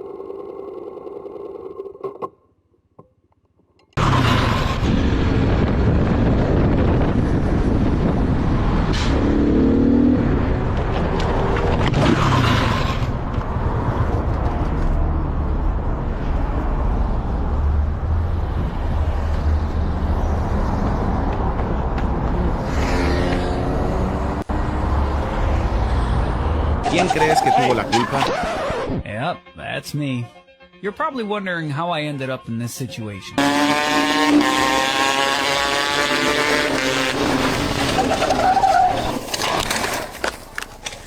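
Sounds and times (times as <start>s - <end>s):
passing traffic: 3.8s - 29.0s, 33.3s - 41.0s
motorcycle engine and wind: 4.0s - 17.1s, 33.4s - 38.0s.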